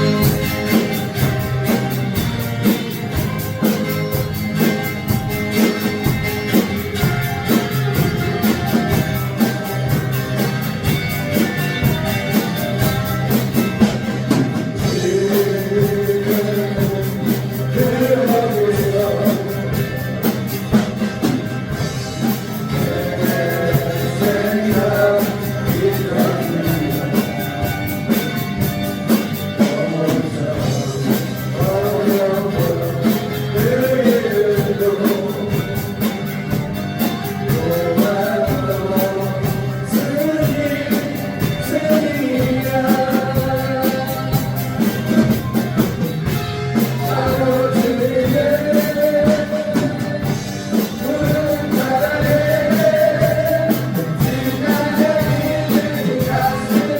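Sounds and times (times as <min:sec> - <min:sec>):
drums steady beat: 0:00.0 - 0:56.9
person singing: 0:14.3 - 0:20.6, 0:22.2 - 0:28.2, 0:29.2 - 0:45.4, 0:46.7 - 0:56.9.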